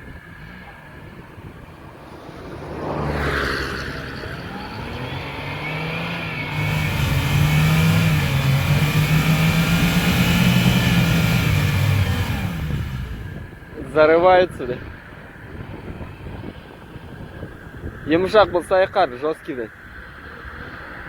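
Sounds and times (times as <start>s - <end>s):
engine revving hard: 4.0s - 13.6s.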